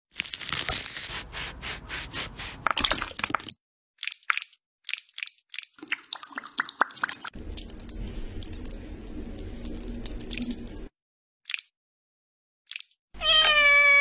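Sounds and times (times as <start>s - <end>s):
cream squeezed from piping bag: 0.1s - 2.9s.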